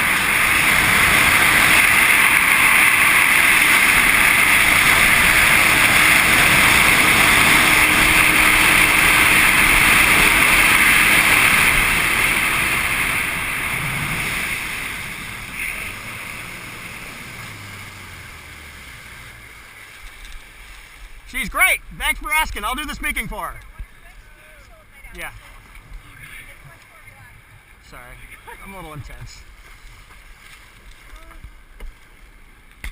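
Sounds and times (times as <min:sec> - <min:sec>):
rushing wind: 0:00.0 - 0:24.4
jet ski engine: 0:00.0 - 0:29.4
water noise: 0:00.0 - 0:32.9.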